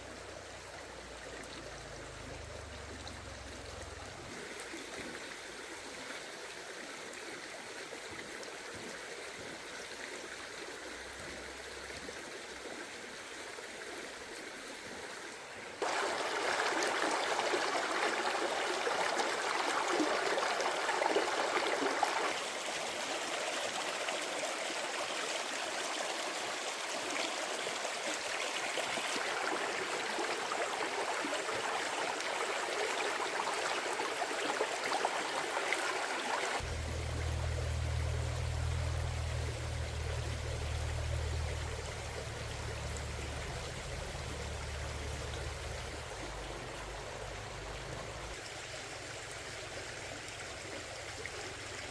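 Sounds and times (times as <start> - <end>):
stream babbling over rocks: 0.0 - 51.9
low rumble: 36.6 - 48.4.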